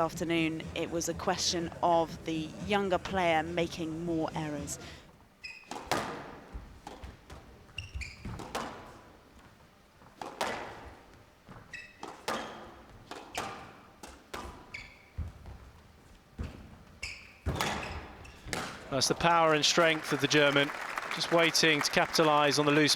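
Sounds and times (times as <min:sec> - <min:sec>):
shoe squeaks on court floor: 0:05.4 - 0:09.5, 0:10.1 - 0:19.0
ball hitting walls: 0:05.6 - 0:09.2, 0:10.0 - 0:19.3
racket striking ball: 0:05.7 - 0:07.1, 0:08.3 - 0:09.0, 0:10.1 - 0:11.0, 0:17.4 - 0:18.9.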